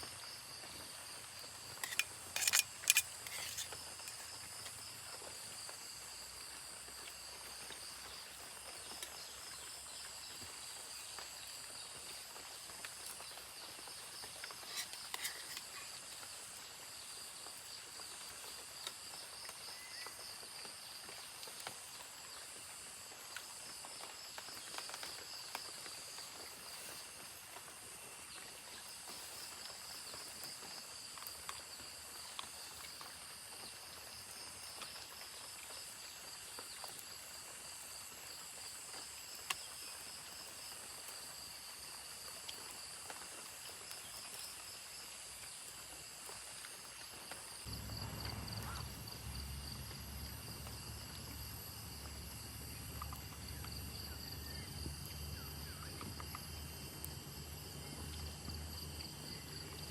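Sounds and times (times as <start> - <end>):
insects chirring: 0.0 - 59.9
small clicks and knocks: 1.7 - 4.8.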